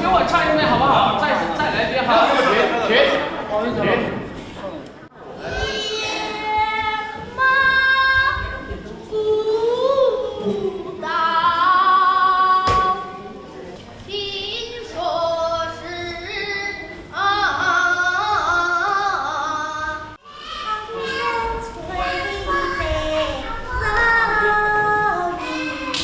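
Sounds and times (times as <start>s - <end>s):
high voice singing opera: 14.7s - 26.0s.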